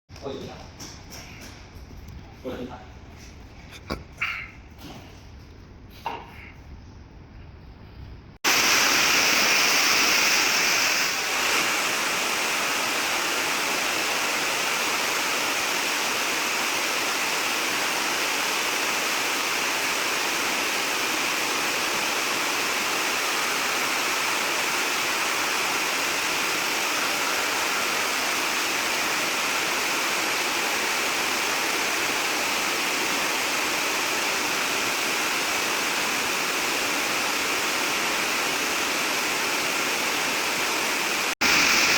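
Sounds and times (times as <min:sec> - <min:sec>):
water rushing: 0:08.4 - 0:41.9.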